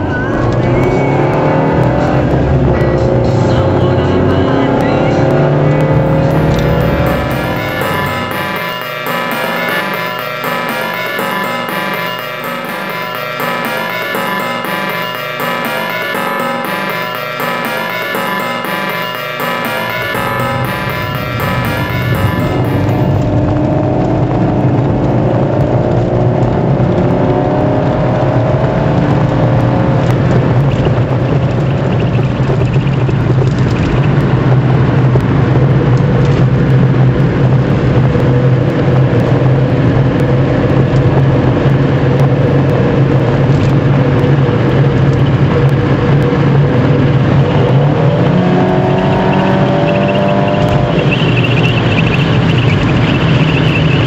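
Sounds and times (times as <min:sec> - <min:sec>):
car engine revving and cruising: 0:00.0 - 0:07.3, 0:23.2 - 0:54.0.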